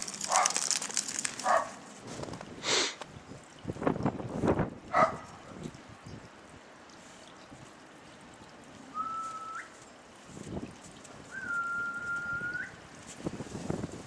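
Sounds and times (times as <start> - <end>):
short rustle: 0.0 - 3.0
whistled notes: 8.9 - 9.8, 11.3 - 12.8.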